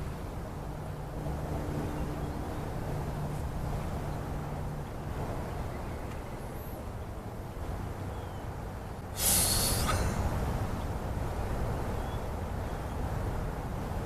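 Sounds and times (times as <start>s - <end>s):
wind rumble on microphone: 0.0s - 14.0s
short loud hiss: 9.2s - 10.2s.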